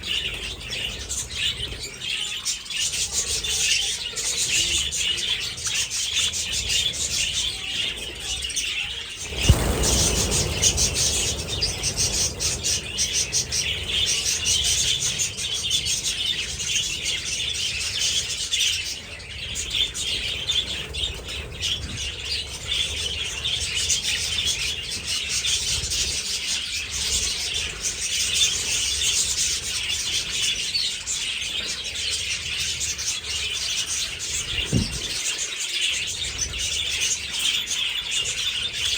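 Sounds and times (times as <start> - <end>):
budgies chattering and chirping: 0.0 - 38.9
low rumble: 9.2 - 17.8
sharp bump: 9.3 - 13.7, 34.6 - 35.2.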